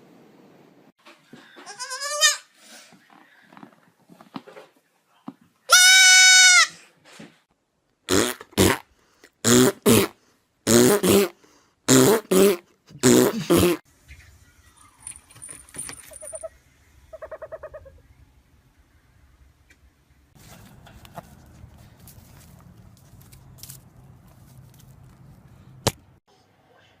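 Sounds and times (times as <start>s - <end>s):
goat bleating: 1.6s - 2.5s
goat harsh calls: 1.7s - 2.5s, 5.7s - 6.8s.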